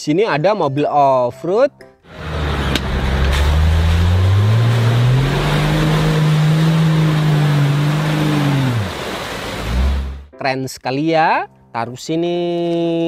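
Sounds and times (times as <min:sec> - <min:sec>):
off-road vehicle engine under load: 0:02.1 - 0:10.3.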